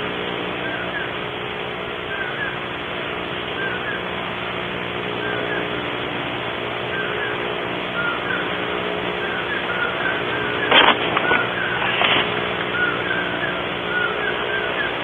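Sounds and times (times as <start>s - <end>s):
background hum and hiss: 0.0s - 15.0s
bird chirping: 0.6s - 1.2s, 2.0s - 2.6s, 5.1s - 5.8s, 6.8s - 8.6s, 9.2s - 15.0s.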